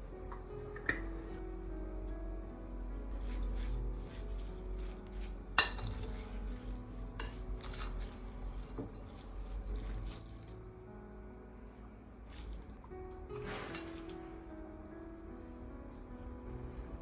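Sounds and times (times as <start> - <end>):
dishes and utensils clinking: 5.6 - 10.5, 13.4 - 14.2.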